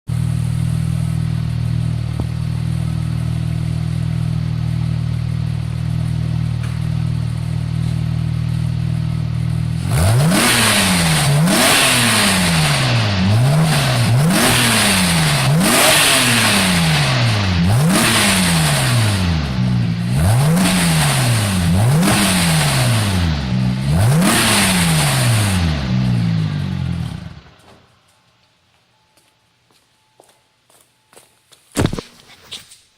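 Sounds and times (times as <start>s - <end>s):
car engine idling and revving: 0.1s - 27.7s.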